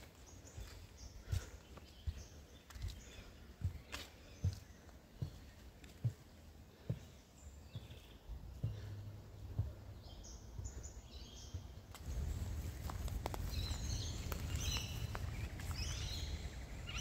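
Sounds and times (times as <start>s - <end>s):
small birds chirping: 0.0s - 17.0s
soft thuds: 8.6s - 10.0s
low outdoor rumble: 11.6s - 17.0s.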